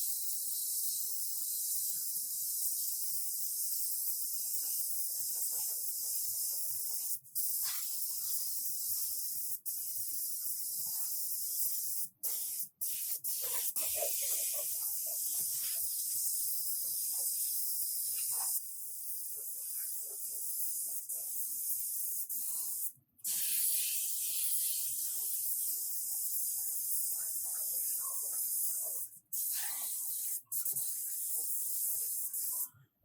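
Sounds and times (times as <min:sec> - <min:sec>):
compressed air hissing from air tool: 0:11.6 - 0:16.4, 0:21.8 - 0:26.9, 0:27.8 - 0:32.6.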